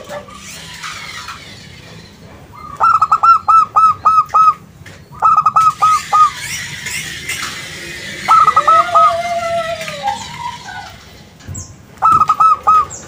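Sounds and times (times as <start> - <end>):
dove cooing: 2.6 - 4.6, 5.2 - 6.5, 8.0 - 11.0, 12.0 - 13.0.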